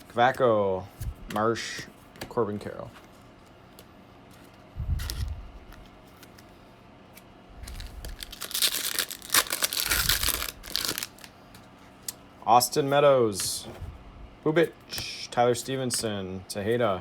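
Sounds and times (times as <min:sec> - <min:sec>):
foil wrapper tearing and crinkling: 0:07.6 - 0:11.3.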